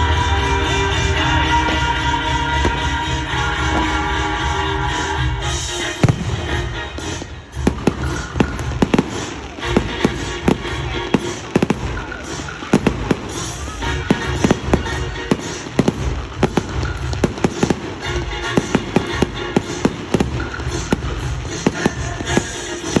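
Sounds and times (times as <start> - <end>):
fireworks bangs: 0.0 - 23.0.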